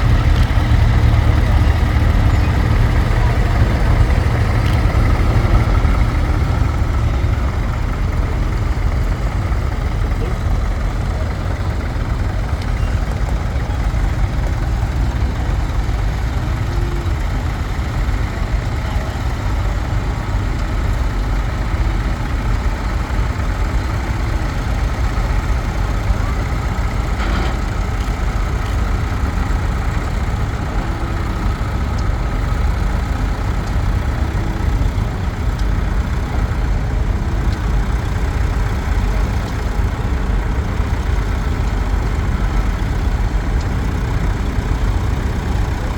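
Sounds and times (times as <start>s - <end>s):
tractor engines rumbling: 0.0s - 45.9s.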